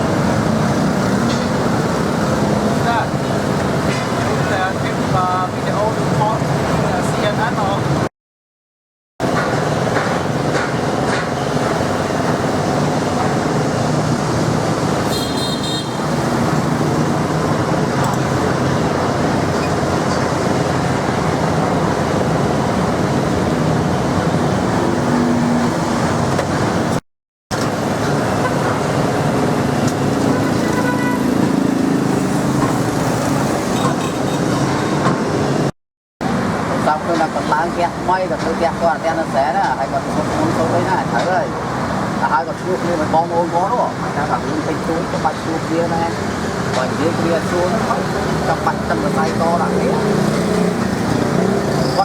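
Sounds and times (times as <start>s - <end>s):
motor vehicles passing: 0.0s - 8.1s, 9.2s - 52.0s
short horn toot: 15.1s - 16.0s, 30.3s - 31.3s.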